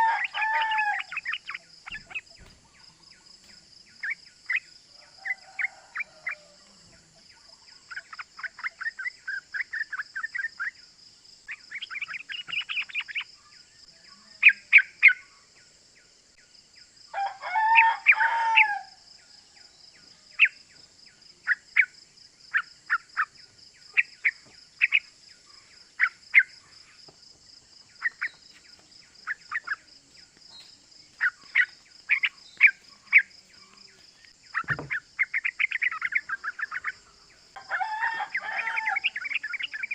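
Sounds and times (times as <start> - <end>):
bird chattering calls: 0.0 - 3.1, 7.8 - 10.8, 11.5 - 13.4, 28.0 - 28.6, 29.2 - 29.9, 30.6 - 33.8, 34.5 - 37.3
bird chirps: 0.0 - 39.9
low bird call: 30.5 - 39.9.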